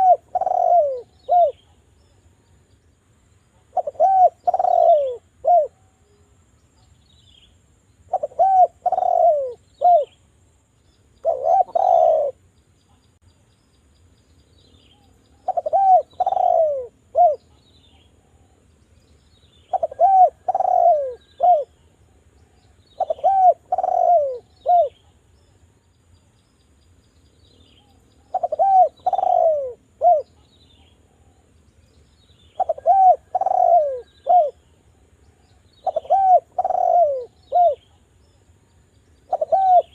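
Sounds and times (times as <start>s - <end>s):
dove cooing: 0.0s - 1.8s, 3.6s - 6.2s, 8.1s - 10.2s, 11.2s - 12.4s, 15.3s - 18.6s, 19.7s - 25.1s, 27.8s - 31.4s, 32.5s - 34.6s, 35.5s - 38.0s, 39.2s - 39.9s.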